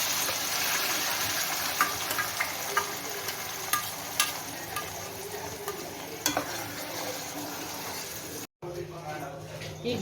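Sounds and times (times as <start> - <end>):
onions sizzling in hot oil: 0.0 - 8.5
spoon clicking against pan: 3.7 - 5.0.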